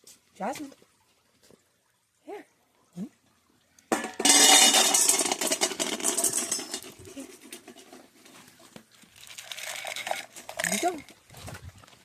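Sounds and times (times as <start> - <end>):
dry dog food poured into bowl: 4.2 - 8.1, 9.1 - 11.1.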